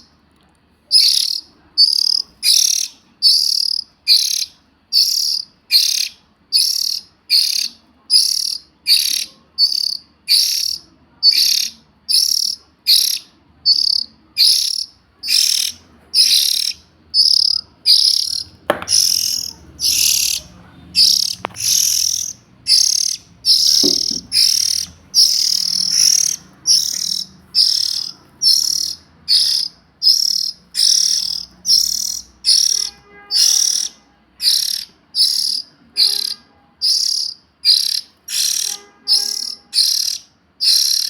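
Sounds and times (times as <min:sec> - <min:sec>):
bird calling harsh high notes: 0:01.0 - 0:41.0
sharp knocks: 0:18.6 - 0:20.1, 0:23.6 - 0:25.0.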